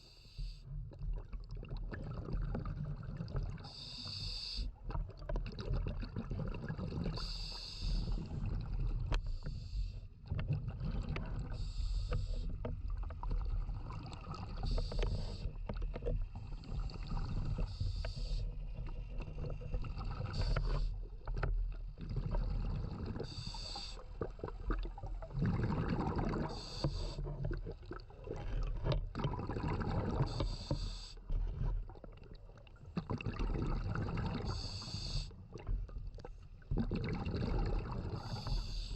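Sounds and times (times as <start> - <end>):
underwater bubbling: 0.4 - 38.9
regulator breath hiss: 3.7 - 4.7, 7.2 - 8.2, 11.6 - 12.5, 17.5 - 18.5, 23.2 - 24.1, 26.5 - 27.2, 30.3 - 31.2, 34.5 - 35.4, 38.2 - 38.9
low underwater rumble: 4.7 - 38.9.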